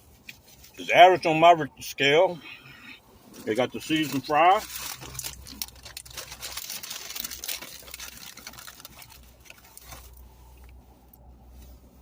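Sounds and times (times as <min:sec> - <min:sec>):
rustling and crackling of food packaging: 0:03.1 - 0:12.0.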